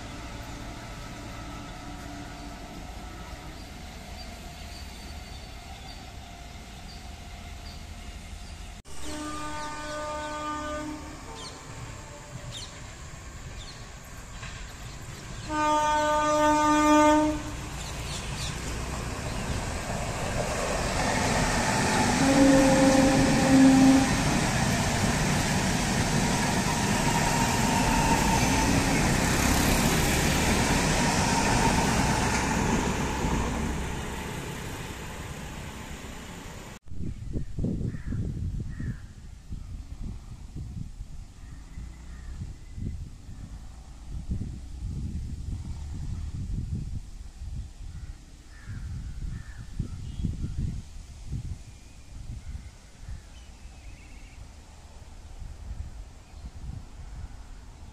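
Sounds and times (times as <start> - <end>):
train horn blasts: 5.4 - 12.6, 15.4 - 17.7, 22.0 - 24.5
train wheels rushing on rails: 11.0 - 16.2, 17.3 - 36.8.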